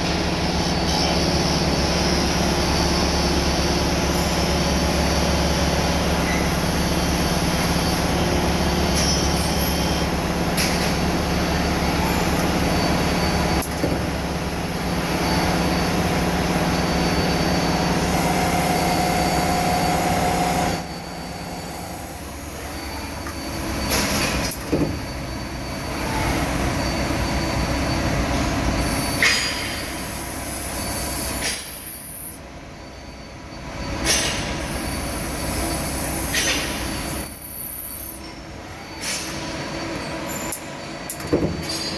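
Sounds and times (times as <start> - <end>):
machinery humming: 0.0 - 41.2
high metallic squealing: 15.0 - 32.3
harsh screech: 16.7 - 22.2.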